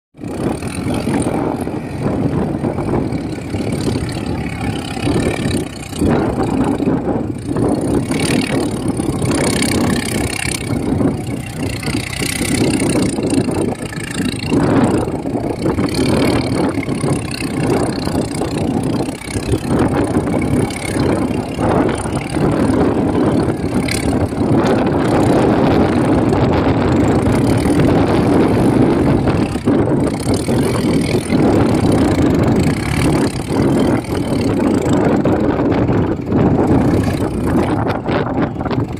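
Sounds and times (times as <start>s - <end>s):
tractor diesel engine running: 0.2s - 38.9s.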